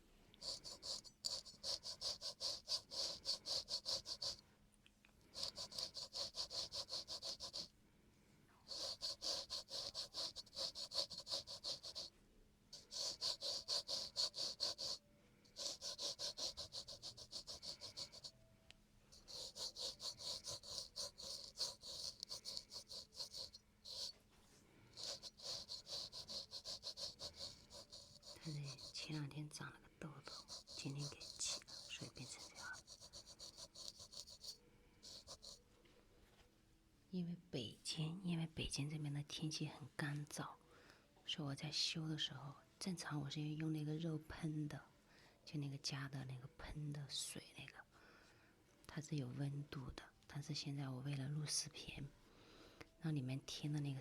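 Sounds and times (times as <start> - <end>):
razor scraping skin: 0.4 - 4.4, 5.3 - 7.7, 8.7 - 12.1, 12.8 - 18.4, 19.1 - 24.2, 24.9 - 29.6, 30.2 - 35.6.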